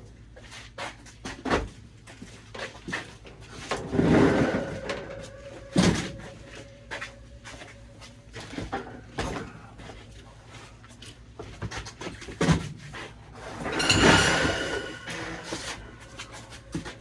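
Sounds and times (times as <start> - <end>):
objects knocking and clunking: 13.5 - 17.0.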